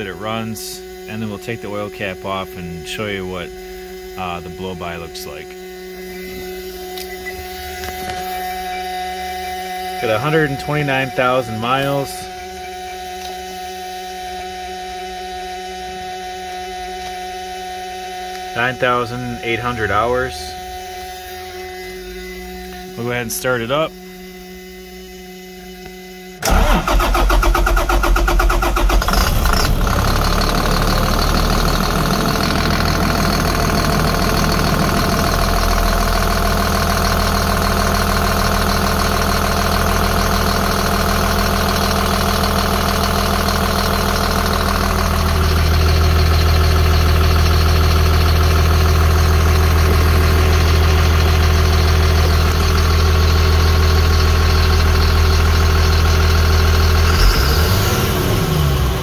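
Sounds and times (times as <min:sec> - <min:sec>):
diesel engine idling: 0:01.0 - 0:13.2, 0:18.5 - 0:21.8, 0:26.4 - 0:59.0
starter motor cranking: 0:26.4 - 0:59.0.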